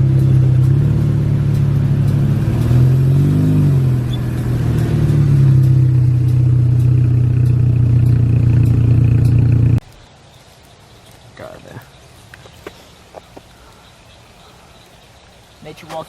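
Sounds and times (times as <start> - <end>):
car engine running and revving: 0.0 - 9.8.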